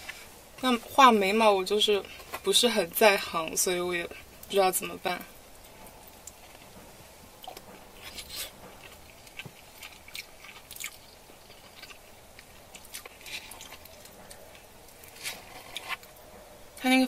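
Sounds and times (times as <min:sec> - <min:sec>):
person chewing food: 0:05.6 - 0:16.4.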